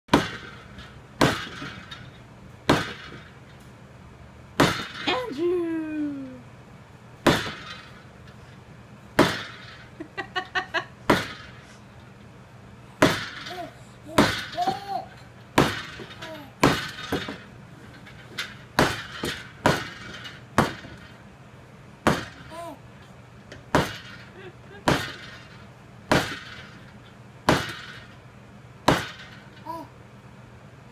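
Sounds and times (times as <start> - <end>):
loud sharp bangs of striking: 0.1 - 3.4, 4.6 - 5.2, 7.2 - 8.0, 9.1 - 9.8, 11.1 - 11.6, 13.0 - 21.1, 22.0 - 22.8, 23.7 - 28.2, 28.8 - 29.6.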